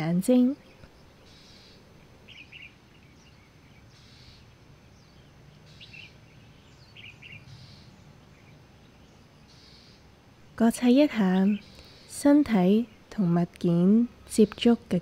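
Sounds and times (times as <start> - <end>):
low background hum: 0.0 - 15.0
bird chirps: 0.6 - 10.1.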